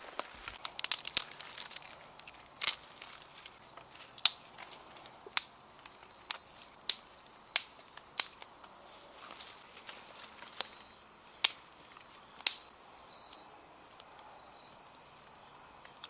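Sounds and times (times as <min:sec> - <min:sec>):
raindrops tapping on tarp: 0:00.0 - 0:03.6
soft hiss of rain: 0:00.0 - 0:16.0.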